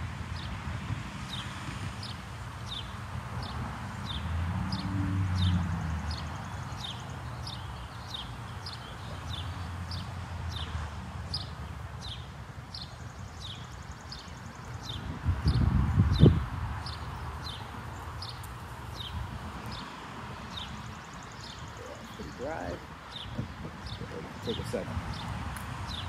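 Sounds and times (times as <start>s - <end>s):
outdoor background noise: 0.0s - 26.0s
bird chirping: 5.4s - 26.0s.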